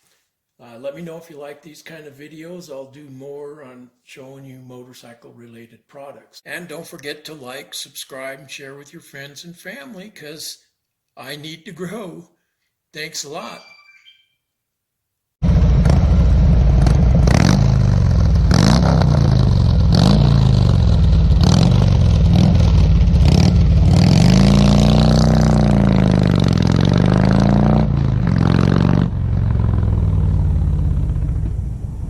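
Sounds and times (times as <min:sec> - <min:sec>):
motorcycle engine revving: 0:15.4 - 0:32.0.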